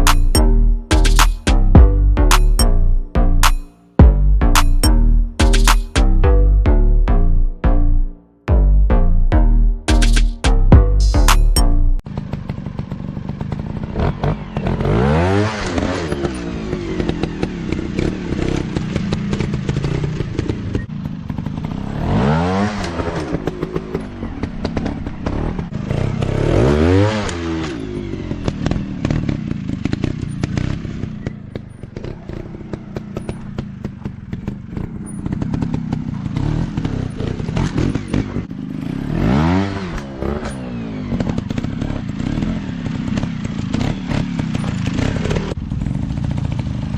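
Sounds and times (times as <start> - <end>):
dirt bike engines revving: 12.2 - 46.9.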